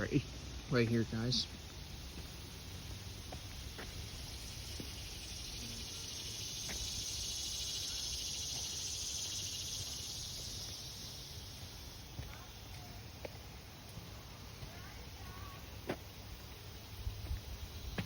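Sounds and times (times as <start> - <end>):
high-pitched insect drone: 0.0 - 12.4.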